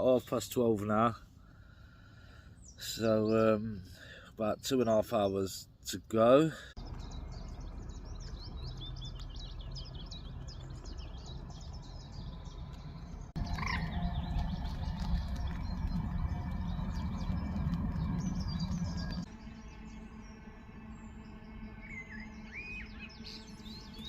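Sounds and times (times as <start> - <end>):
songbirds chirping and singing: 0.0 - 24.0
low outdoor rumble: 6.6 - 24.0.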